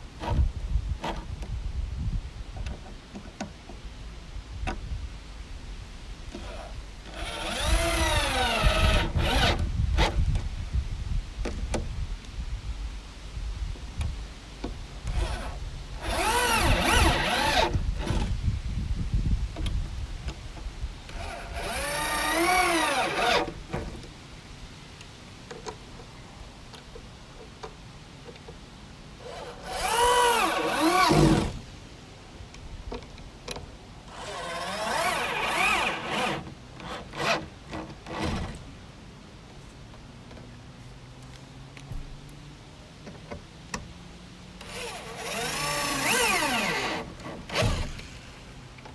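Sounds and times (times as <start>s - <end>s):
electric drill driving screws into wood: 6.4s - 10.2s, 15.1s - 18.3s, 21.1s - 24.0s, 29.2s - 31.6s, 34.1s - 38.6s, 44.6s - 48.7s.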